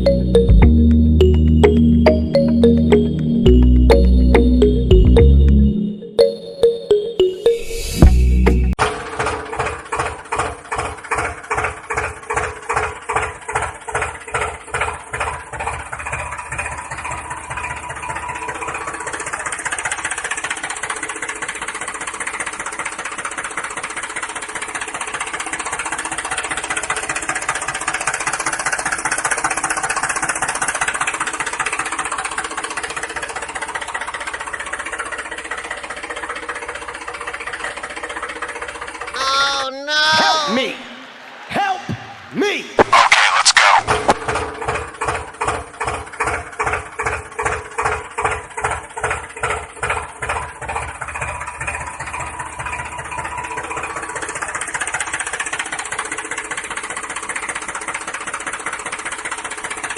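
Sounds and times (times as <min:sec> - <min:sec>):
tractor engine chugging: 0:08.2 - 0:39.6, 0:43.2 - 0:59.9.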